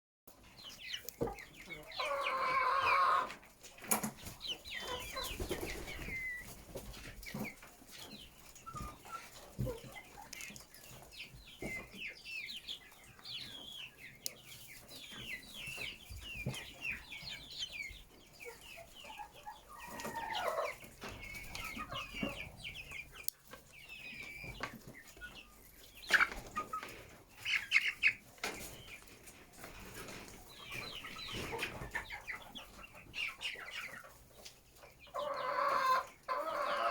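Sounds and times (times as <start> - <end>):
chickens clucking and squawking: 0.3 - 36.9
loud long chicken call: 2.0 - 3.3.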